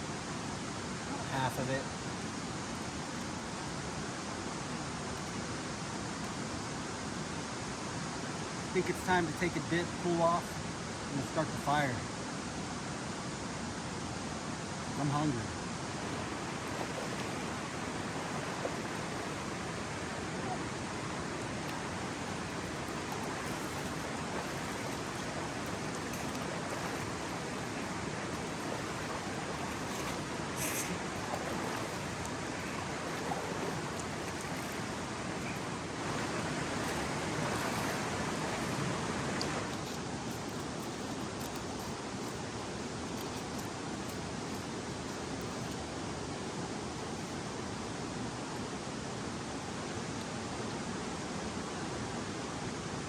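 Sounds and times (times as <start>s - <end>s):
mountain river rushing: 15.0s - 46.4s.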